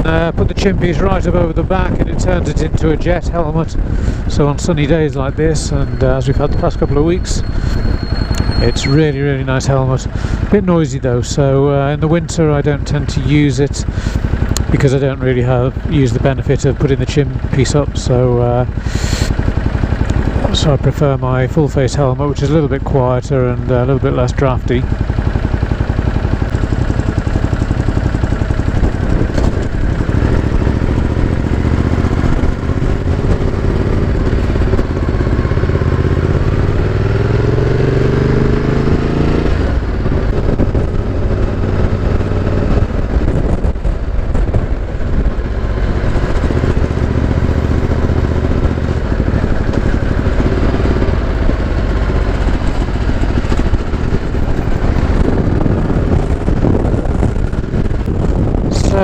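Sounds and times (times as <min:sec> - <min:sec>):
wind noise on microphone: 0:00.0 - 0:05.4, 0:26.4 - 0:59.0
motorcycle engine running: 0:00.0 - 0:59.0.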